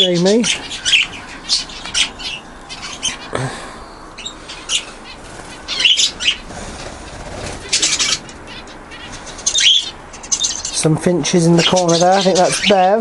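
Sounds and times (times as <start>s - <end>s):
budgerigars chirping: 0.0s - 13.0s
wings flapping: 5.1s - 9.8s.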